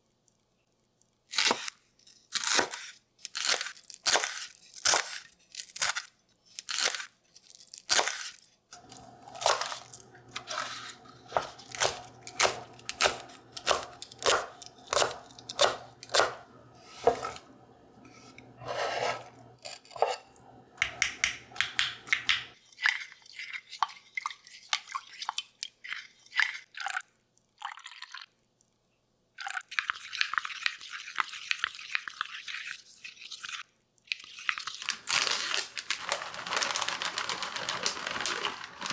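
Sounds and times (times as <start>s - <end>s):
crisp knocks and crunches: 8.8s - 16.2s, 34.8s - 38.9s
faint steady hum: 8.8s - 22.6s.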